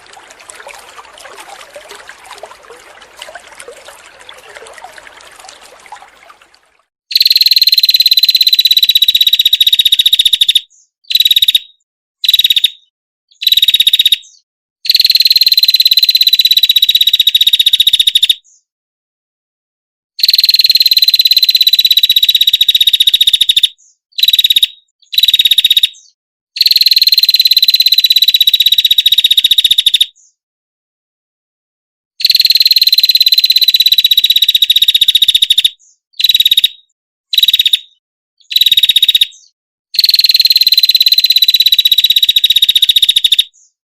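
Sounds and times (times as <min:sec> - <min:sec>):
faint trickling: 0:00.0 - 0:06.9.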